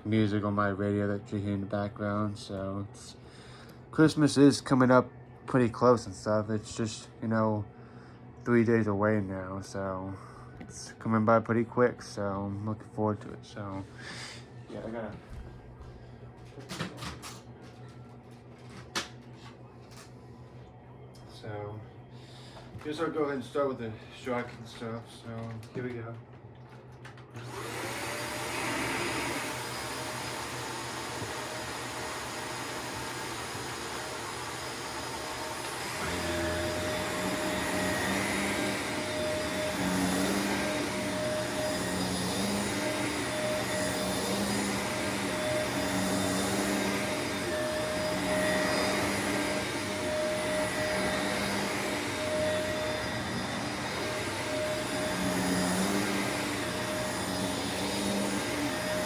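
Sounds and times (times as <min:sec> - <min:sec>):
vacuum cleaner motor whine: 0:27.0 - 0:59.0.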